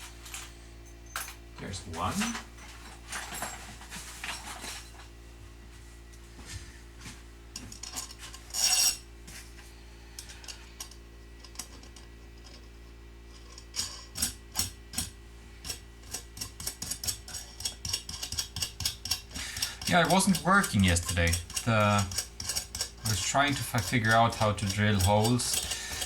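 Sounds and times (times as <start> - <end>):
metal hardware clattering: 1.1 - 5.0, 13.4 - 26.0
metal hardware clinking: 13.3 - 26.0.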